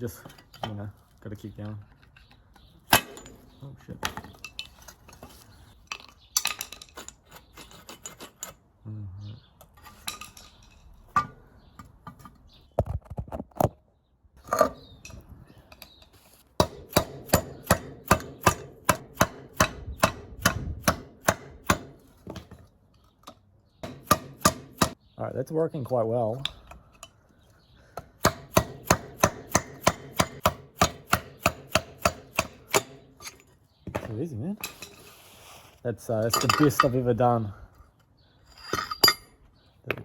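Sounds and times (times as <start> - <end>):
tool clatter and knocks: 1.6 - 8.6, 9.8 - 13.8, 32.4 - 35.1, 36.2 - 37.1, 38.5 - 40.0.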